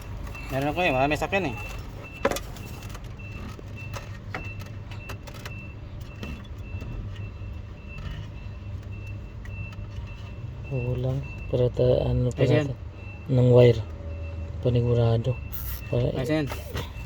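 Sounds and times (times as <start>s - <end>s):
faint high electronic beep: 15.3s - 17.0s.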